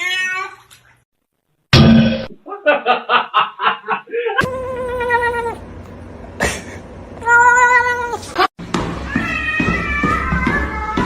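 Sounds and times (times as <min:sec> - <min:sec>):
cat meowing: 0:04.4 - 0:06.0, 0:07.2 - 0:08.3.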